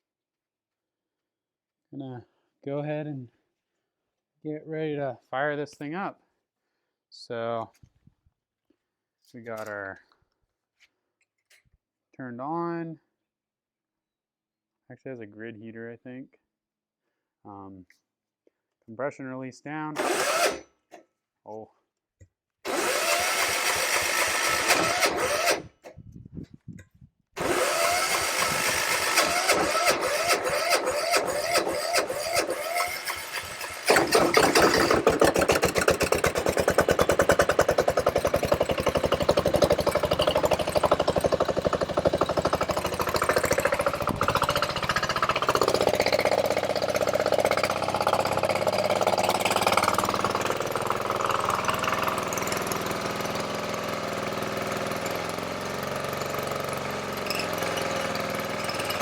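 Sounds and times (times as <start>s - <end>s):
electric starter cranking engine: 20.0s - 20.7s, 22.6s - 26.0s, 27.4s - 59.0s
diesel generator engine running: 22.7s - 25.7s, 27.4s - 59.0s.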